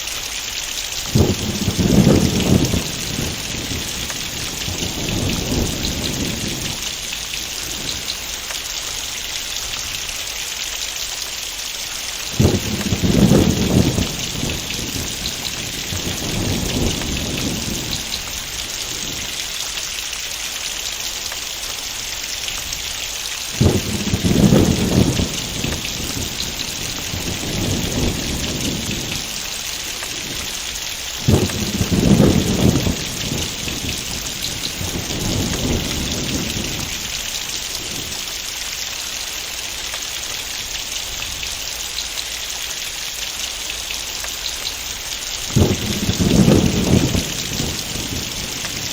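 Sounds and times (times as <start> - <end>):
heavy rain falling: 0.0 - 48.9
thunder rumbling: 1.0 - 9.8, 12.1 - 19.8, 22.6 - 38.5, 44.5 - 48.9.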